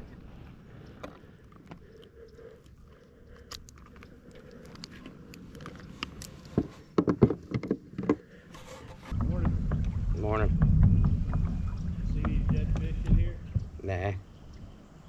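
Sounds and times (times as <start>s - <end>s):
light clicks and crackles: 0.7s - 6.8s
loud knocks: 9.1s - 14.2s.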